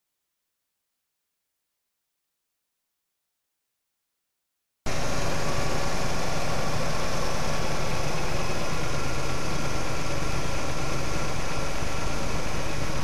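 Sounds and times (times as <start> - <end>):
car engine idling: 4.9 - 13.0.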